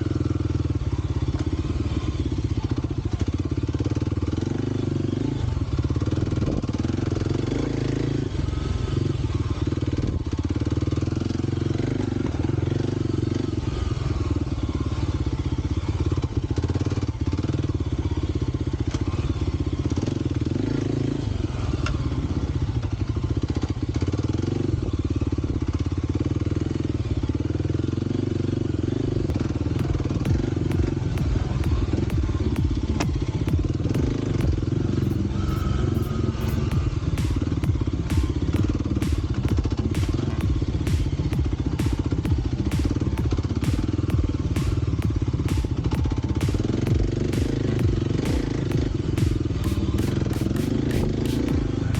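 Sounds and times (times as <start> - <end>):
motorcycle engine running: 0.0 - 51.9
sharp clicks and ticks: 29.3 - 51.9.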